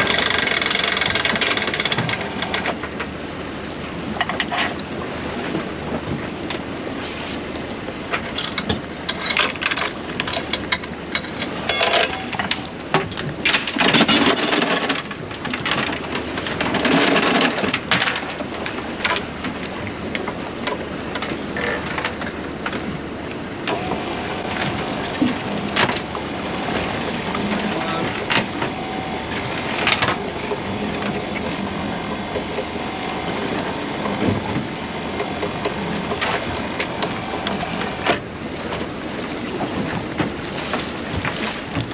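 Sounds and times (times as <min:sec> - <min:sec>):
knocks and clatter on boat: 0:00.0 - 0:41.9
wind and water noise: 0:00.0 - 0:41.9
faint steady hum: 0:08.4 - 0:14.6.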